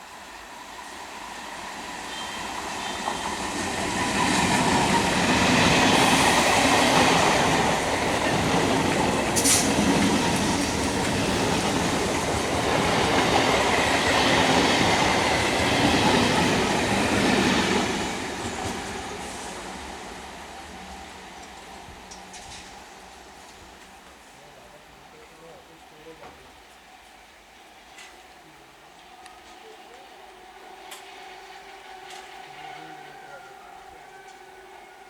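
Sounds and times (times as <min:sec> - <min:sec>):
train passing with wheel clatter: 0:00.0 - 0:35.0.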